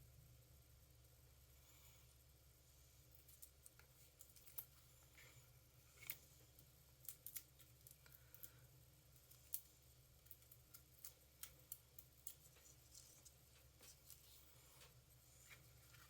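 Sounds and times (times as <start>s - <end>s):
small clicks of paper handling: 9.2s - 16.0s.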